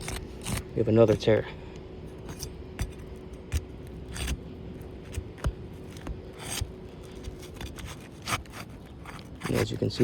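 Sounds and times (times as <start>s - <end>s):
roof shingle scraping and ripping: 5.0s - 10.0s.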